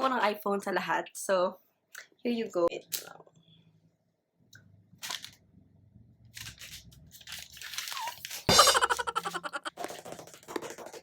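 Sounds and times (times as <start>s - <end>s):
packaging crackling: 6.4s - 8.5s.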